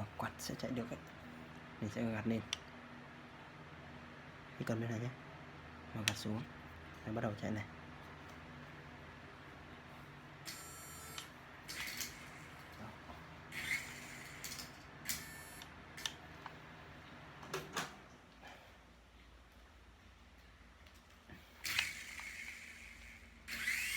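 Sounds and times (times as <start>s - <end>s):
toy helicopter motors humming: 10.5s - 12.7s, 13.5s - 15.7s, 21.6s - 23.9s.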